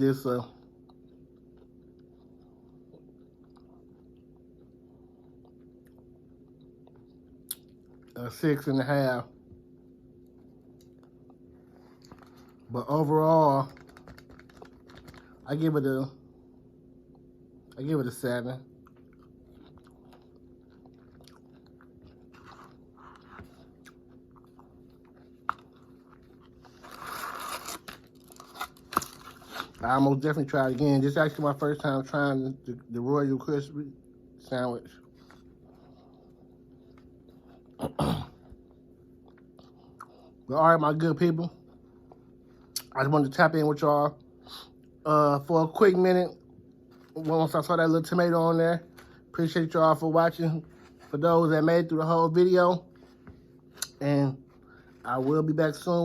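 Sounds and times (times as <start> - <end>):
low electrical hum: 0.0 - 56.0
person chewing crunchy food: 0.6 - 8.2, 13.6 - 15.4, 18.7 - 30.0.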